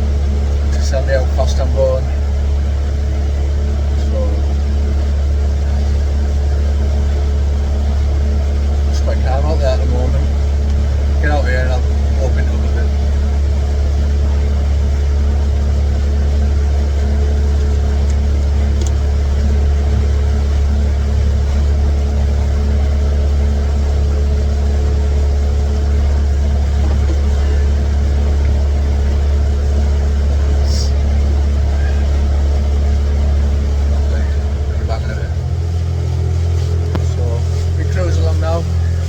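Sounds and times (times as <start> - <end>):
boat engine droning: 0.0 - 39.0.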